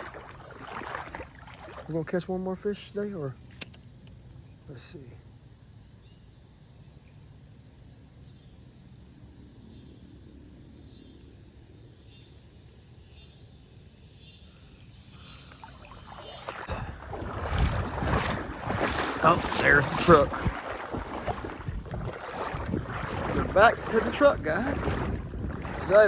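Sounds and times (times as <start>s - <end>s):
insects chirping: 0.0s - 26.0s
loud rough rustling: 16.4s - 26.0s.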